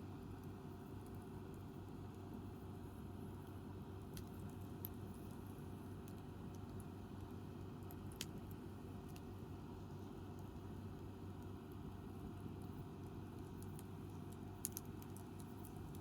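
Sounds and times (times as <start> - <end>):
wood fire crackling: 3.0 - 16.0.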